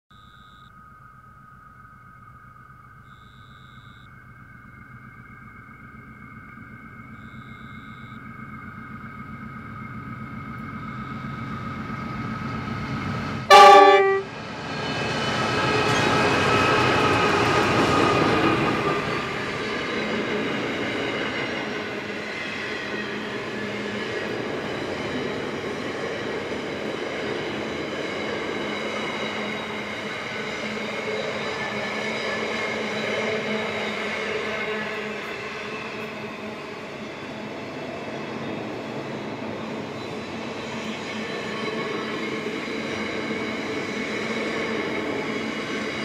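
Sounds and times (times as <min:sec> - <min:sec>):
diesel locomotives passing: 0:04.1 - 0:46.0
train horn blast: 0:13.4 - 0:14.4.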